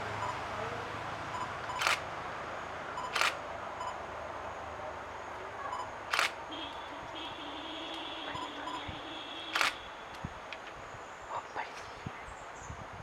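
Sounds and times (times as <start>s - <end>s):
camera shutter clicks: 1.7s - 2.1s, 3.0s - 3.4s, 6.1s - 6.4s, 9.5s - 10.2s.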